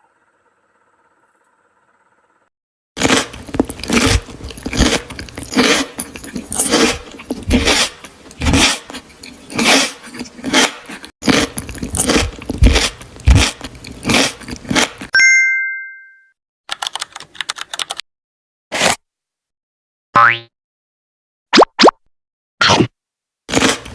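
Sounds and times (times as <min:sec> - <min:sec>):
chewing: 0:03.0 - 0:15.1
crunchy bites: 0:03.0 - 0:15.1, 0:23.5 - 0:23.9.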